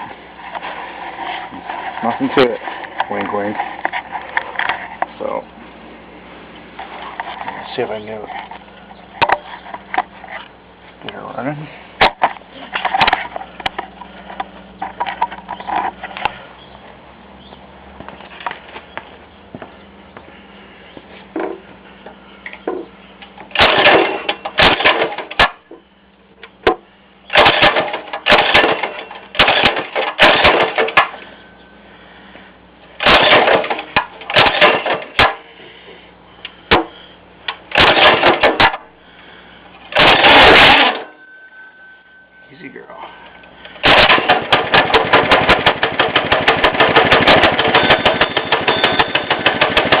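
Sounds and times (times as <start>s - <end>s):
mini bike engine starting: 23.5s - 25.4s, 27.3s - 31.2s, 33.0s - 35.4s, 37.7s - 38.8s, 39.9s - 41.2s, 43.8s - 50.0s.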